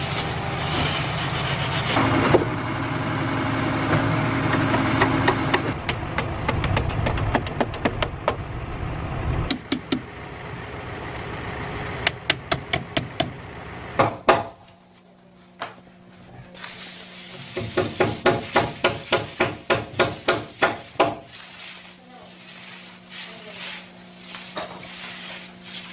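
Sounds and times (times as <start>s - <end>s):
engine running: 0.0s - 14.2s.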